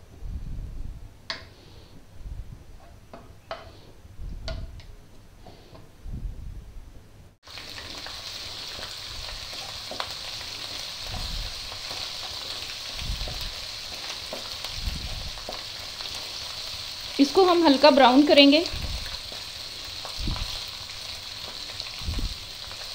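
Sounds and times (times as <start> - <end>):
paste sizzling in hot oil: 7.4 - 22.9.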